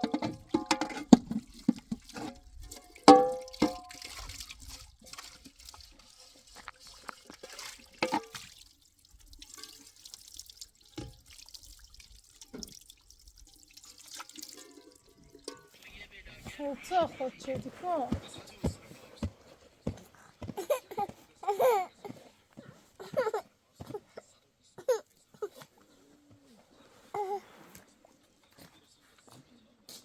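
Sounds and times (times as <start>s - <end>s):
water splashing and dripping: 0.0s - 15.8s.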